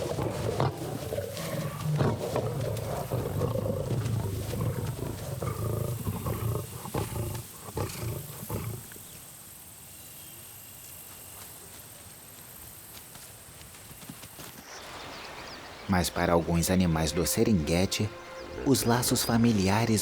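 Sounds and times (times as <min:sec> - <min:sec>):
lions roaring and snarling: 0:00.0 - 0:09.0.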